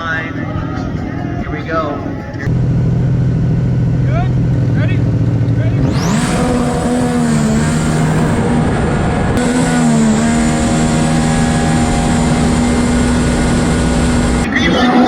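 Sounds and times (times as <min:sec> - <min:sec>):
jet ski engine at high revs: 0:03.0 - 0:14.9.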